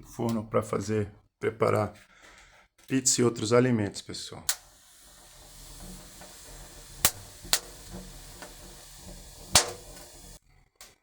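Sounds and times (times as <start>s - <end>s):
fire crackling pops: 4.5s - 10.4s
wood fire hissing: 4.5s - 10.4s.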